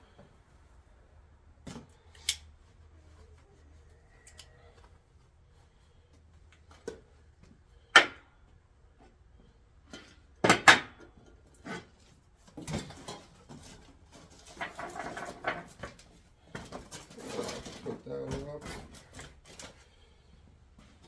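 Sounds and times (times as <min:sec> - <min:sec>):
rustling and scraping: 0:11.1 - 0:21.0.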